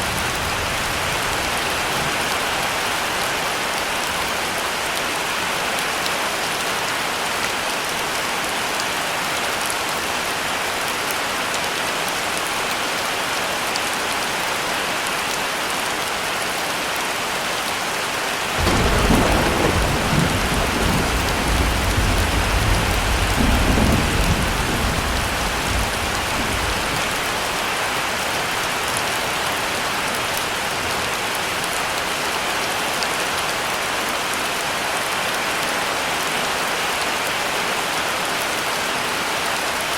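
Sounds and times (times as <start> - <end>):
heavy rain: 0.0 - 39.9
thunder rumbling: 18.6 - 27.4.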